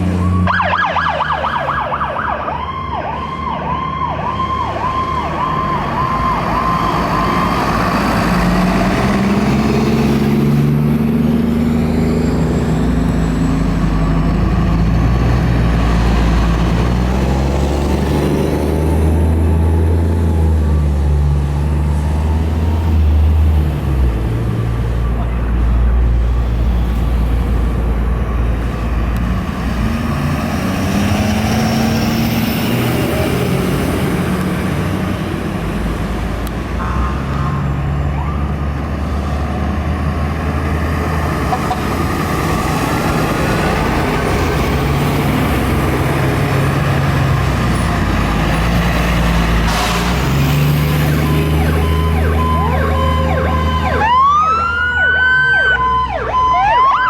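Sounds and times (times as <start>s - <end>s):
fire truck diesel engines: 0.0s - 57.0s
electronic siren wailing: 0.1s - 8.4s, 36.8s - 38.6s, 51.2s - 57.0s.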